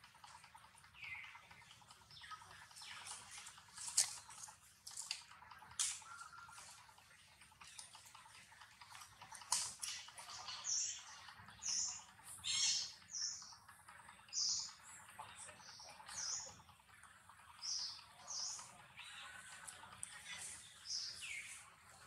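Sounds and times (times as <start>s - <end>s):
bird chirping: 0.2s - 4.4s, 5.8s - 6.9s, 9.8s - 22.0s.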